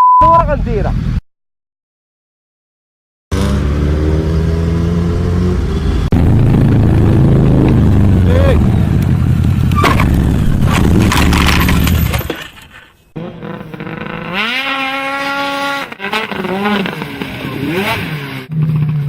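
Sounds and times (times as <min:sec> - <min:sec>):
engine revving: 0:03.3 - 0:12.5, 0:13.1 - 0:19.0
vehicle rumbling on road: 0:03.3 - 0:19.0.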